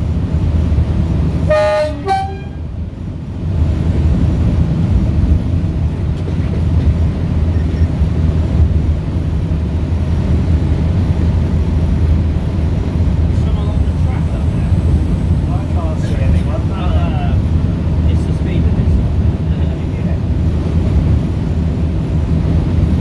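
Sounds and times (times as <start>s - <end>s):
diesel engine droning: 0.1s - 3.3s, 11.6s - 19.9s
locomotive horn: 1.4s - 2.8s, 13.6s - 16.4s.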